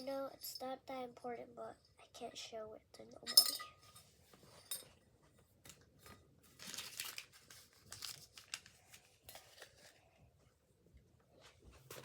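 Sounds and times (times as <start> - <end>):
wrapper crinkling and rustling: 6.4 - 10.1.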